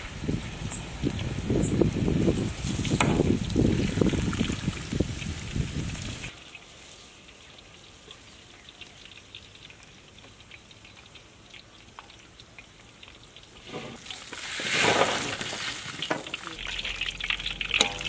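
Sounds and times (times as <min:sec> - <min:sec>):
fries sizzling in hot oil: 0:00.7 - 0:18.0.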